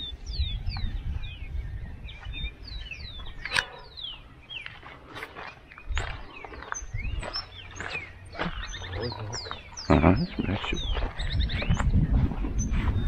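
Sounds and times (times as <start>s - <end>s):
birds whistling: 0.0s - 13.0s
sharp click: 3.4s - 3.8s.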